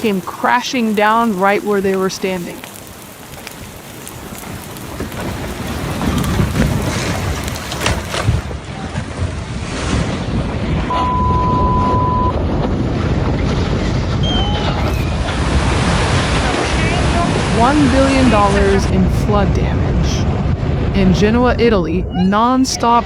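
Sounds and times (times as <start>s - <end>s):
rocks crashing down: 2.7s - 10.1s
steady beep: 10.9s - 12.3s.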